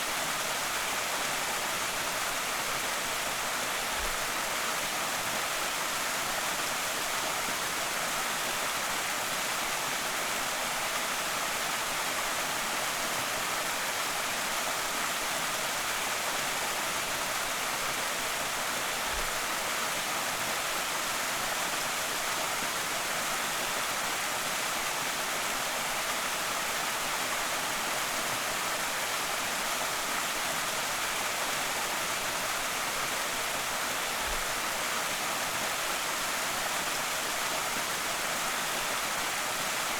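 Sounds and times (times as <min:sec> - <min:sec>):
small waterfall pouring: 0:00.0 - 0:39.9.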